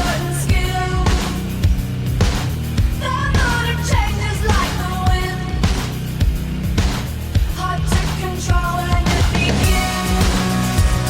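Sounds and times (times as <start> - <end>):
bass: 0.0 - 11.0
drum beat: 0.0 - 11.0
person singing: 7.6 - 11.0.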